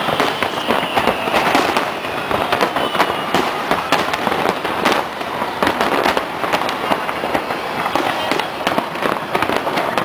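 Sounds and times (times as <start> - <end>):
faint high whistle: 0.0 - 4.0
fireworks bangs and crackles: 0.0 - 10.0.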